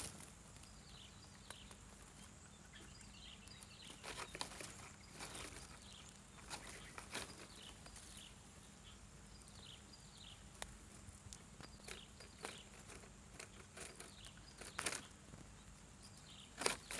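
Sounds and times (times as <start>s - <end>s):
bird chirping: 0.6s - 10.6s, 11.4s - 16.9s
sharp clicks and rustles: 11.3s - 15.5s, 16.6s - 16.9s.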